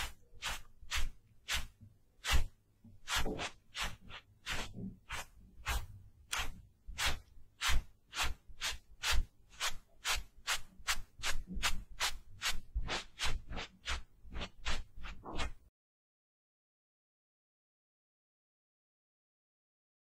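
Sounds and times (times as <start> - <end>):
makeup tool rubbing strokes: 0.0 - 15.6.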